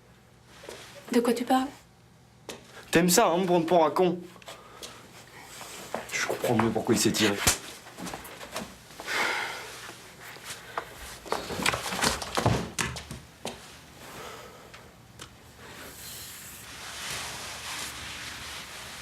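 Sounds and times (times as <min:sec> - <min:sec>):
soft rustling hiss: 0:00.2 - 0:12.0, 0:13.4 - 0:19.0
knocks and thuds of movement: 0:11.3 - 0:13.3.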